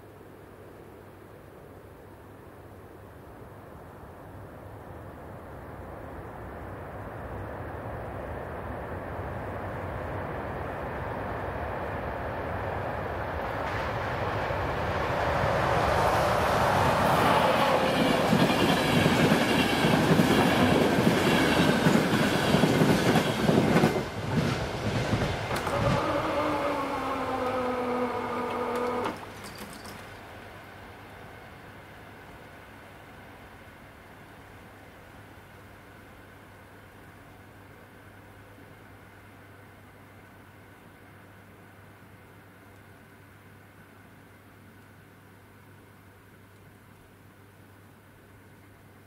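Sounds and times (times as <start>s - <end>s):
passenger train passing: 4.4s - 40.1s
clicks from rail joints: 25.2s - 30.3s
falling whine: 25.5s - 29.2s.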